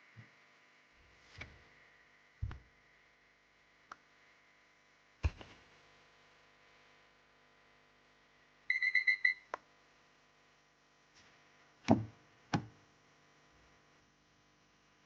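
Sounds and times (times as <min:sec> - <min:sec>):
faint steady hum: 0:00.0 - 0:15.0
loud knocks: 0:11.9 - 0:12.7.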